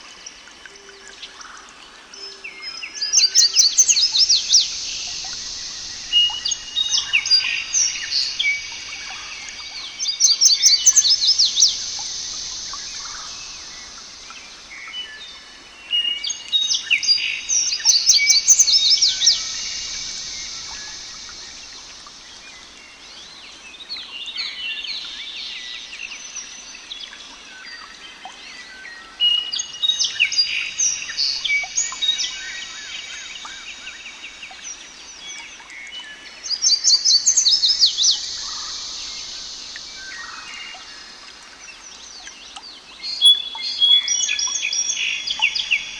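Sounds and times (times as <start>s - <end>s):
songbirds singing: 0.0s - 45.9s
birds chirping: 3.2s - 15.4s, 17.0s - 23.2s, 42.2s - 45.9s.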